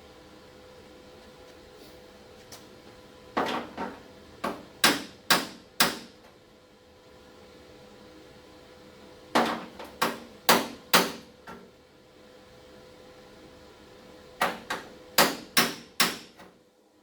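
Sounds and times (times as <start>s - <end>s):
hammer striking sheet metal: 4.8s - 6.1s, 15.2s - 16.4s.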